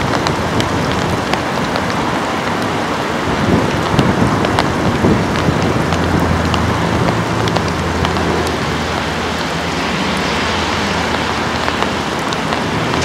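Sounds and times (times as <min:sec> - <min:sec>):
train wheels rushing on rails: 0:03.4 - 0:13.0.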